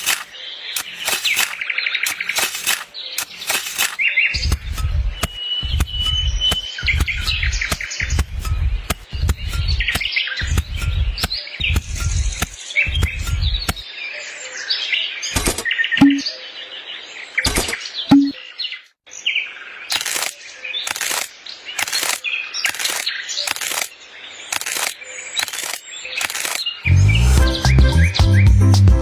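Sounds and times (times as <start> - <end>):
sharp clicks: 0.0 - 13.8, 19.9 - 23.9, 24.5 - 26.7
small birds chirping: 0.0 - 28.6
low thumps: 4.4 - 13.8.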